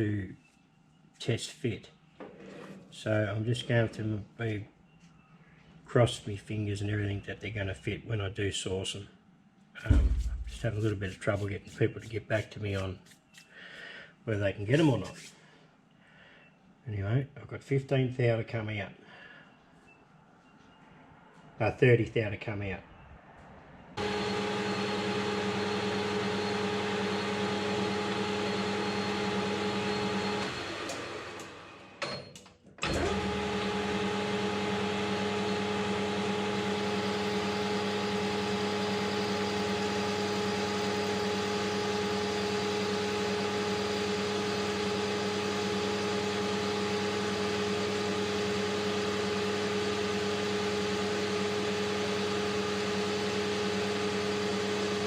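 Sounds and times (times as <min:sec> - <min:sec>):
metal lathe motor hum: 0:24.0 - 0:32.0, 0:32.9 - 0:55.0.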